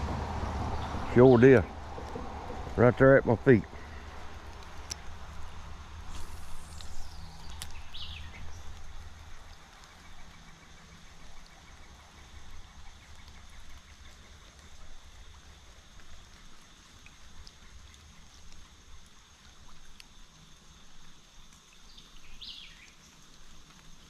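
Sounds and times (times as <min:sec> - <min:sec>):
water flowing in creek: 0:00.0 - 0:24.0
faint high insect hum: 0:00.1 - 0:24.0
bird chirp: 0:06.1 - 0:09.5.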